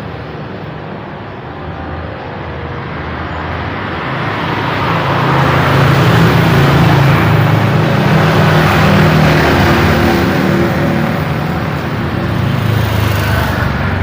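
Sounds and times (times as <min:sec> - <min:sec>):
passing vehicles: 0:00.0 - 0:14.0
vehicle engine approaching: 0:03.2 - 0:14.0.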